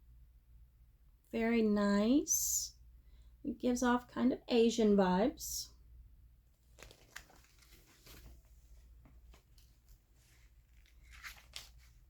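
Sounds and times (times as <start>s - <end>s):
low steady hum: 0.0s - 12.0s
magazine pages turning: 6.6s - 12.0s.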